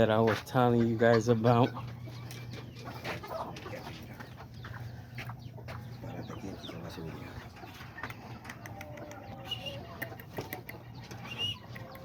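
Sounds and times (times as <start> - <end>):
chickens clucking: 0.0 - 12.0
steady low hum: 0.0 - 12.0
chirps and clicks: 1.6 - 6.8, 7.6 - 12.0.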